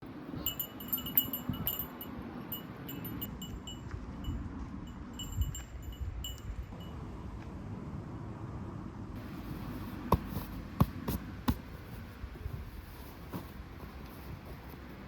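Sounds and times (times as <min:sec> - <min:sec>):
small chimes tinkling: 0:00.4 - 0:07.0.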